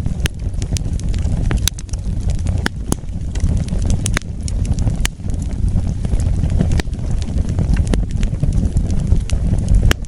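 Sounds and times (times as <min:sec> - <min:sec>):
fire popping: 0:00.0 - 0:10.0
flames rumbling: 0:00.0 - 0:10.0
wood fire crackling: 0:00.0 - 0:10.0.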